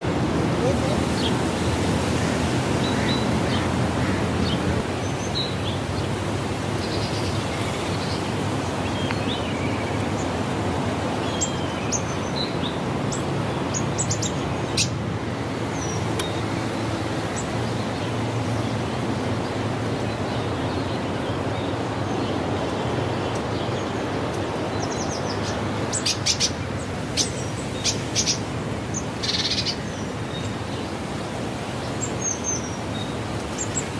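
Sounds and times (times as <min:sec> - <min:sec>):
outdoor background hiss: 0:00.1 - 0:33.9
birds chirping and calling: 0:00.6 - 0:06.1, 0:11.1 - 0:15.0, 0:24.7 - 0:31.0.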